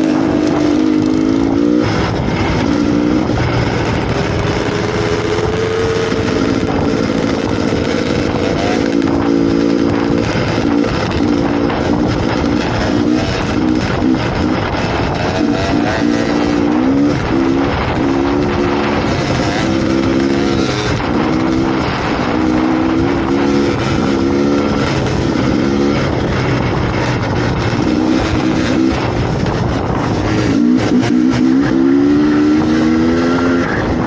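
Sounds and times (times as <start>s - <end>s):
dirt bike engine revving: 0.0s - 34.0s
wind and riding noise: 0.0s - 34.0s.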